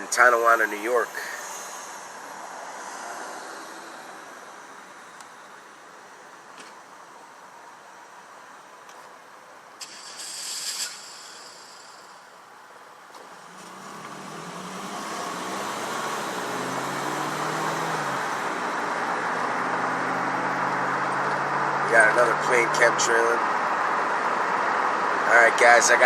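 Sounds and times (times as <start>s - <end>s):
brief hiss: 9.8s - 12.3s
car engine from inside cabin: 13.2s - 25.1s.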